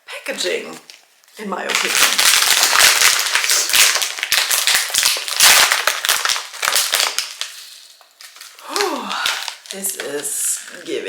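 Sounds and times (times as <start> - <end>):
plastic snack bag crinkling: 0.6 - 11.0.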